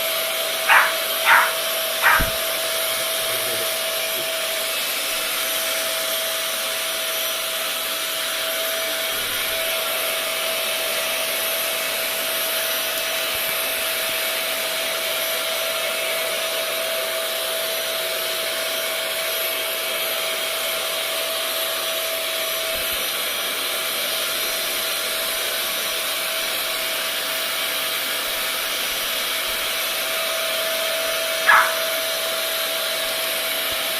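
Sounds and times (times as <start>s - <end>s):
vacuum cleaner running: 0.0s - 33.9s
dog barking: 0.6s - 2.6s, 31.4s - 32.2s.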